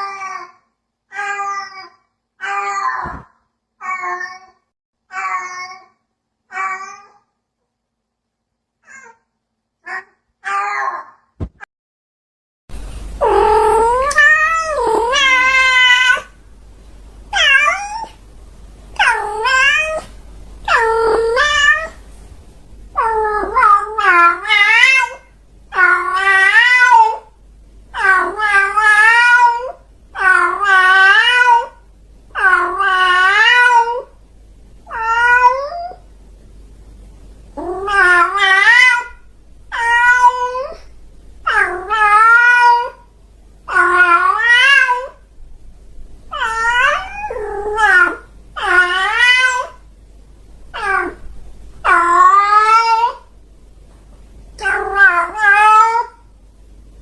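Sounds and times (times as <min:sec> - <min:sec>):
cat meowing: 0:01.1 - 0:05.9, 0:06.5 - 0:07.2, 0:09.8 - 0:11.2, 0:13.2 - 0:16.4, 0:17.3 - 0:18.2, 0:19.0 - 0:20.1, 0:20.7 - 0:22.0, 0:23.0 - 0:27.3, 0:34.9 - 0:36.0, 0:37.6 - 0:40.9, 0:41.5 - 0:43.0, 0:43.7 - 0:45.2, 0:46.3 - 0:49.8, 0:50.8 - 0:53.3, 0:54.6 - 0:56.2.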